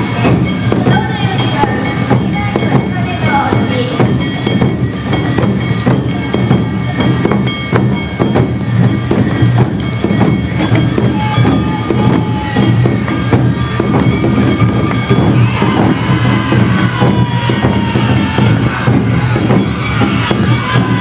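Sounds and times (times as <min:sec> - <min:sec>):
drums beating: 0:00.0 - 0:21.0
hand gongs beating: 0:00.0 - 0:21.0
high flute tones: 0:09.8 - 0:21.0.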